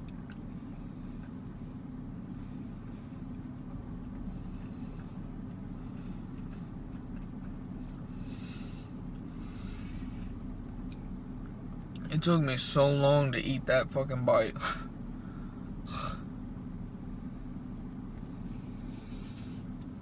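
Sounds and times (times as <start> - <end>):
steady low hum: 0.0 - 20.0
person chewing food: 4.6 - 8.1.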